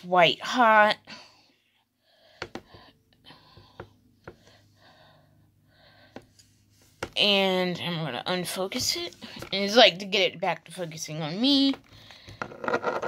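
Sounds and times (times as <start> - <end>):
quiet breathing: 1.1 - 7.0, 11.8 - 12.5.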